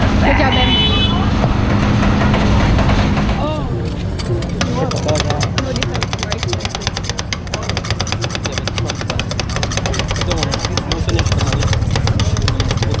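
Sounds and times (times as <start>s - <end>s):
engine running with clatter: 0.0s - 13.0s.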